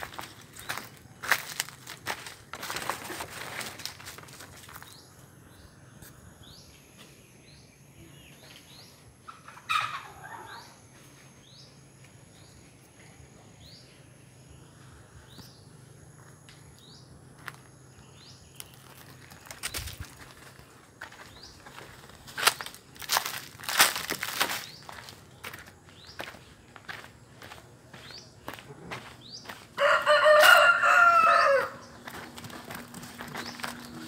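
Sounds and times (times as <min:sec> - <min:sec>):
footsteps on dry ground: 0:00.0 - 0:05.2, 0:16.1 - 0:34.0.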